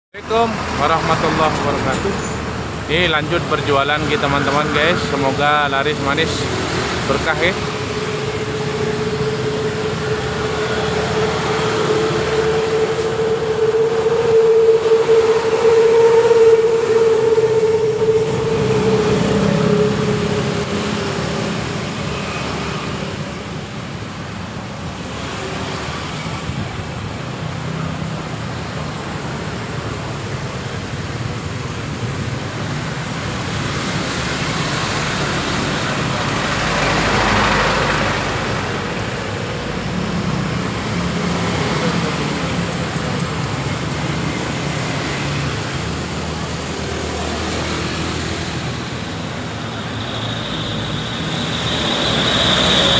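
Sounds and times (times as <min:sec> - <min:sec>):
road traffic: 0:00.0 - 0:52.9
passing vehicle hum: 0:00.2 - 0:52.9.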